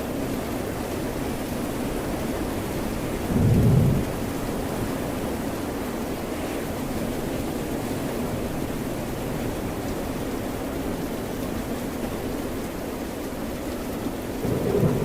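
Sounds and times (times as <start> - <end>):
rain: 0.0 - 15.0
low rumble: 3.4 - 4.2.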